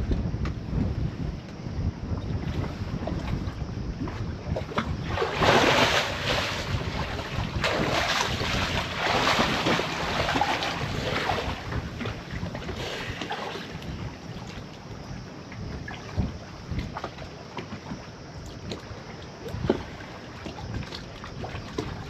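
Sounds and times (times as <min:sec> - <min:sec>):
water washing around hull: 0:00.0 - 0:22.0
wind buffeting microphone: 0:00.0 - 0:22.0.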